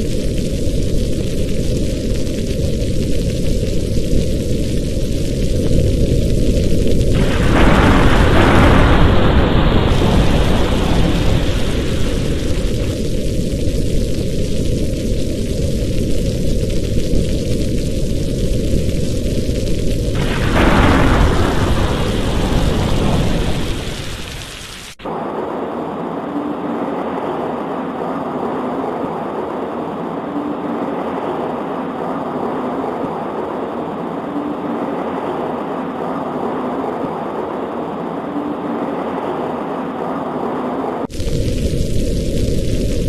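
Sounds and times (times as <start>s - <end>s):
heavy rain: 0.0s - 43.0s
thunder rumble: 0.0s - 43.0s.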